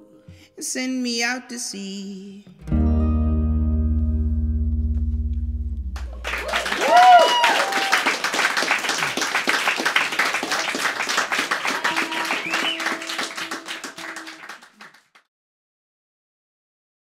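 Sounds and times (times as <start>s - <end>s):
audience clapping: 6.0s - 15.3s.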